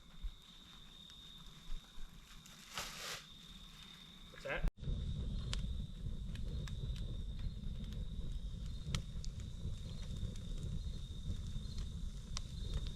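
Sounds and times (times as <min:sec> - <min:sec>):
campfire crackling and popping: 0:00.0 - 0:03.4, 0:04.8 - 0:12.9
insect trill: 0:00.0 - 0:12.9
fire low roar: 0:04.8 - 0:12.9.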